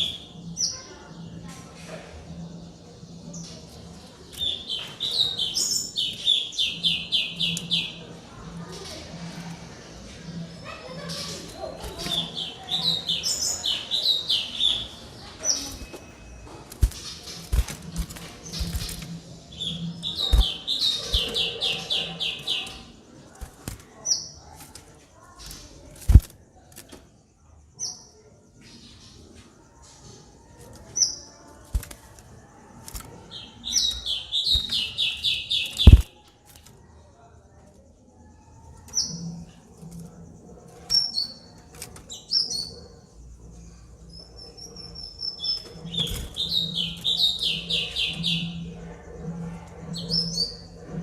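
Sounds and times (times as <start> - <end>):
songbird whistling and chattering: 0.0 - 0.8, 4.3 - 8.0, 18.5 - 22.9, 33.3 - 36.1, 44.1 - 48.7
songbird singing: 0.0 - 51.0
faint low hum: 28.9 - 51.0
low thumps: 35.8 - 36.1.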